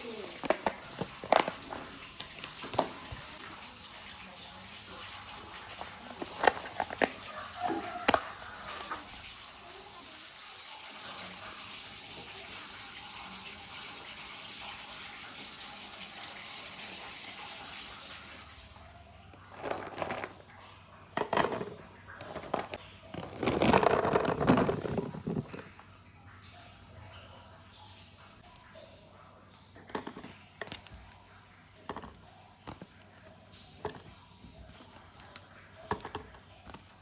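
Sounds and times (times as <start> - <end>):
clattering and knocking: 19.5 - 20.4, 21.2 - 25.8.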